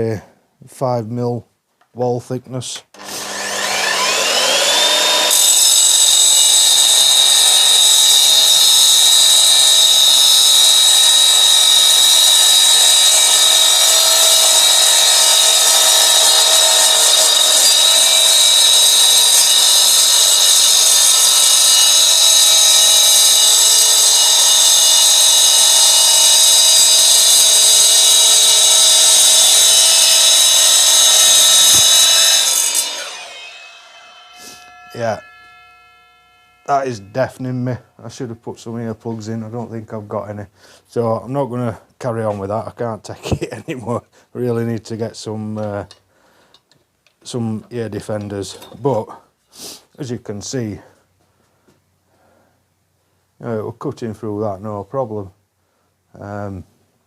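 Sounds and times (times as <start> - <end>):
saw blade screeching through steel: 3.0 - 37.9.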